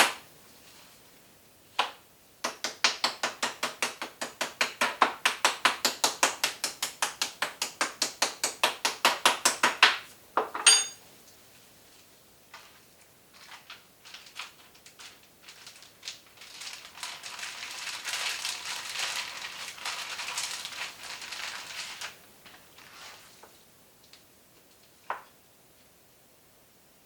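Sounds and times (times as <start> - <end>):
sharp ringing clink: 10.6 - 11.0
dense crackling and crinkling: 11.3 - 25.1.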